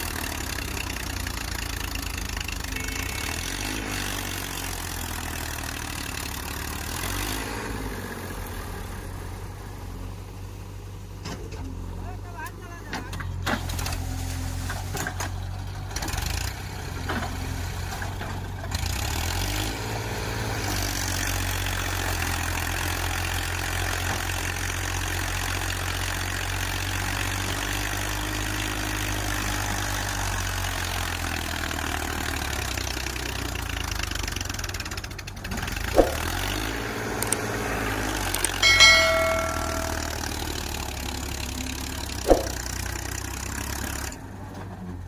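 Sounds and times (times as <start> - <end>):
tractor diesel engine running: 0.0 - 12.0, 15.3 - 45.0
short pitched tone: 38.6 - 40.6.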